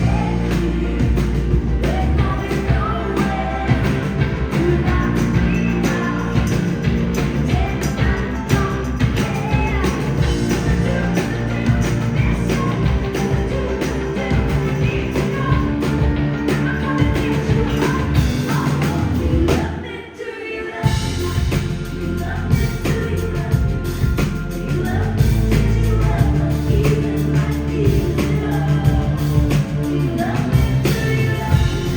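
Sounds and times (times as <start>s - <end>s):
live rock band playing: 0.0s - 19.8s, 20.8s - 31.9s
person singing: 0.0s - 31.9s.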